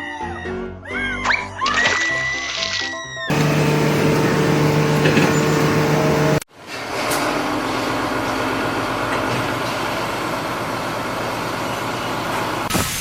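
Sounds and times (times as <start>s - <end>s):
motor humming: 3.3s - 6.4s
steady rushing machinery noise: 3.3s - 6.4s.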